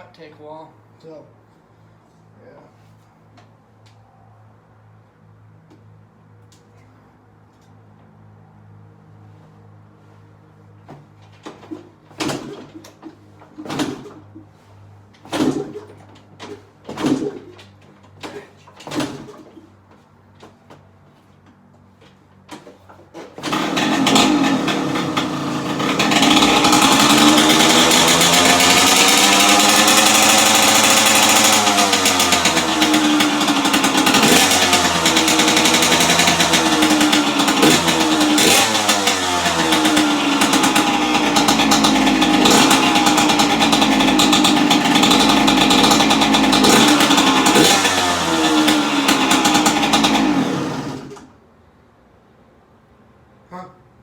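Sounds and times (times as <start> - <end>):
dirt bike engine revving: 23.4 - 51.3.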